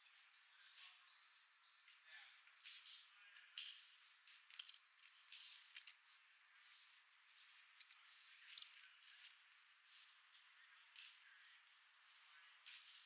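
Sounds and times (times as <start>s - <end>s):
small birds calling: 8.6s - 8.8s.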